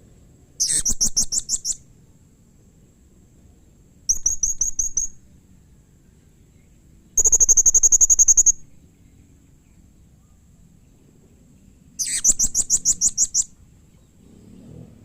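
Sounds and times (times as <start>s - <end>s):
parrot calling shrill trills: 0.6s - 1.8s, 4.1s - 5.2s, 7.2s - 8.6s, 12.0s - 13.5s.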